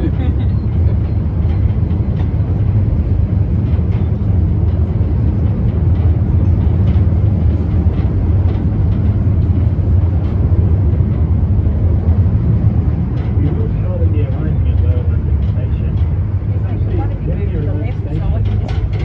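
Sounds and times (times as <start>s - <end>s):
train low rumble: 0.0s - 19.0s.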